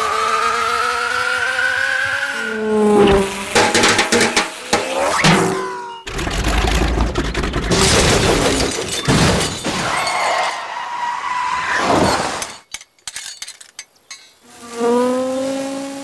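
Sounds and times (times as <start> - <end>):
crash: 3.2 - 10.2
small clattering and tinkling: 12.6 - 14.4.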